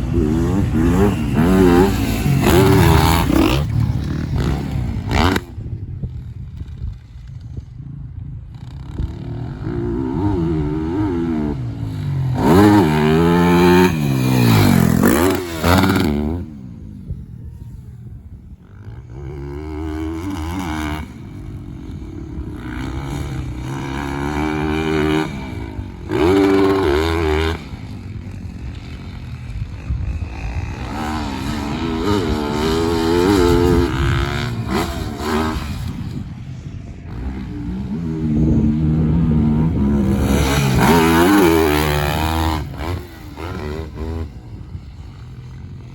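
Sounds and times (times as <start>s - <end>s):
dirt bike engine revving: 0.0s - 5.8s, 8.5s - 17.8s, 18.6s - 45.9s.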